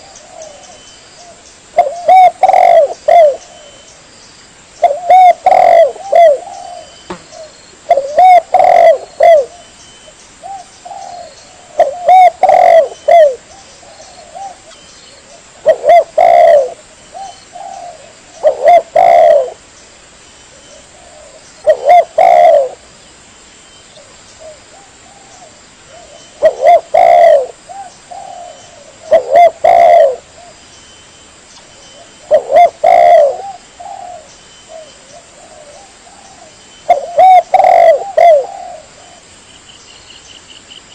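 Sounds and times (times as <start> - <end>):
dove cooing: 0.0 - 3.9, 4.8 - 9.7, 10.4 - 19.6, 20.5 - 22.8, 24.0 - 30.6, 32.0 - 39.3.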